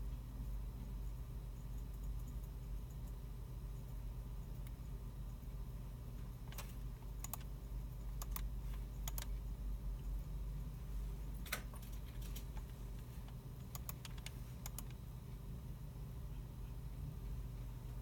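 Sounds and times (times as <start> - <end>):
low hum of machines: 0.0 - 18.0
computer keyboard keystrokes: 6.5 - 9.3, 11.4 - 15.0
mouse clicks: 7.2 - 7.5, 8.2 - 9.3, 13.6 - 15.0.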